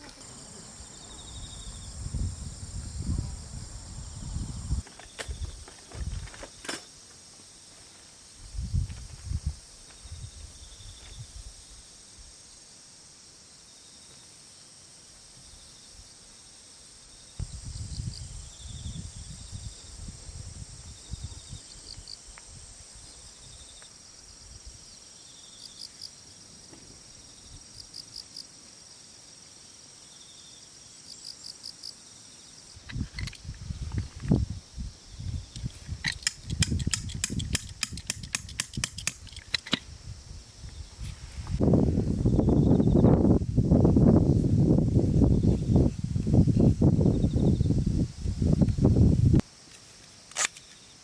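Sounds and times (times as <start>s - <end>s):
crickets trilling: 0.0s - 51.0s
sharp click: 35.5s - 39.9s, 50.3s - 50.8s.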